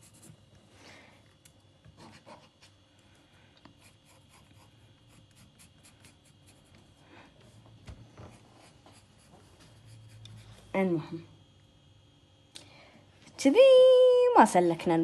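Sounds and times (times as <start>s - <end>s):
pencil scratching on paper: 0.0s - 0.4s, 2.0s - 2.8s, 3.8s - 6.8s, 8.2s - 10.8s.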